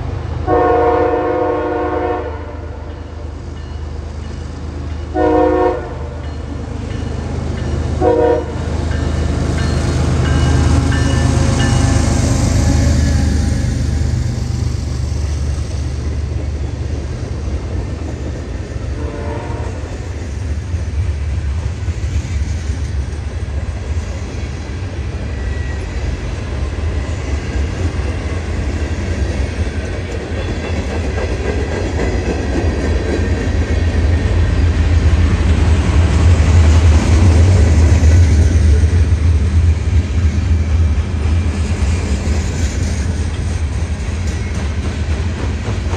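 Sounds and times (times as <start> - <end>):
rolling train cars: 0.0 - 45.9
train horn blast: 0.4 - 3.0, 5.1 - 6.3, 8.0 - 8.7, 19.0 - 20.0
locomotive rumble: 1.8 - 45.9.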